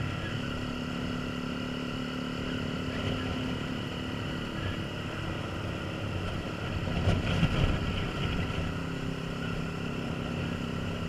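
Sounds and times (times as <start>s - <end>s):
motorcycle engine running: 0.0s - 11.0s
wind buffeting microphone: 5.9s - 8.9s.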